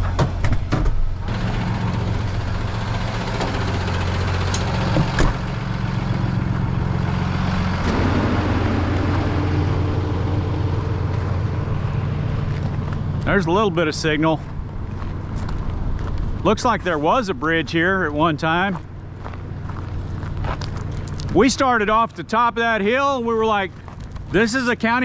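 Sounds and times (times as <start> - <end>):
truck engine idling: 1.1 - 25.0
sharp clicks and knocks: 2.8 - 5.5.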